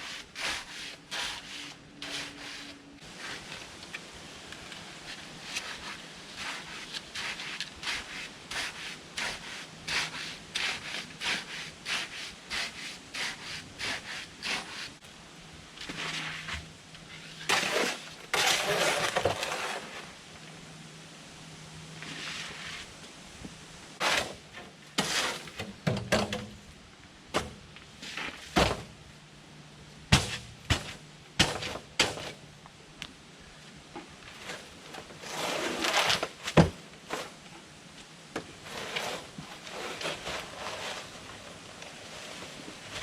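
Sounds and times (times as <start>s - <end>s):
short scraping noise: 24.0s - 25.6s, 34.4s - 36.4s, 38.6s - 43.0s.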